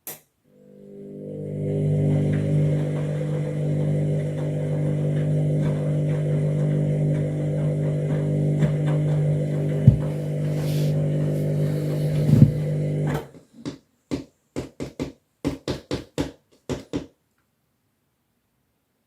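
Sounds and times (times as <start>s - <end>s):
washing machine motor hum: 0.6s - 13.2s
washing machine drum thumps: 9.8s - 10.3s.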